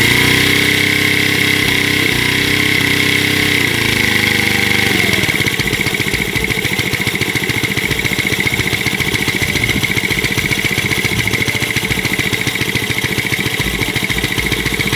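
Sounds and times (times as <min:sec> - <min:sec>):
small engine running: 0:00.0 - 0:14.9
steady high whine: 0:01.6 - 0:14.9.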